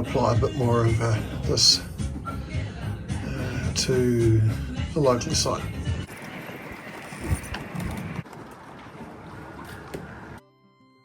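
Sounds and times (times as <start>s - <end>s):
wind on microphone: 6.1s - 10.4s.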